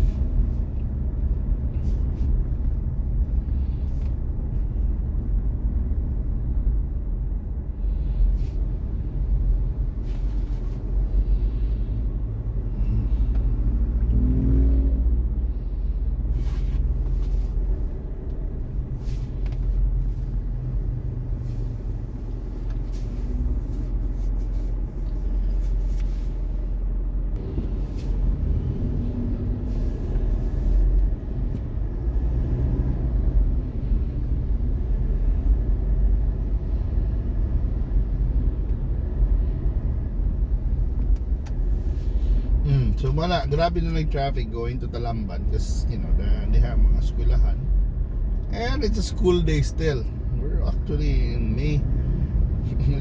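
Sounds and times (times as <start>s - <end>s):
car engine and road noise: 0.0s - 53.0s.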